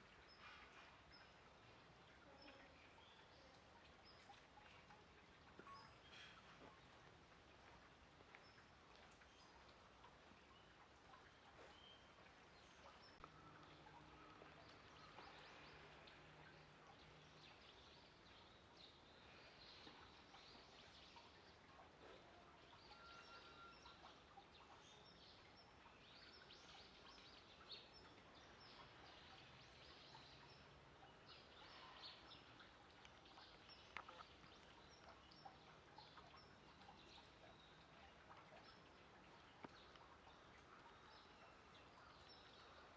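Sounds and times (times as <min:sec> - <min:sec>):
faint high chirps: 0:22.7 - 0:24.1.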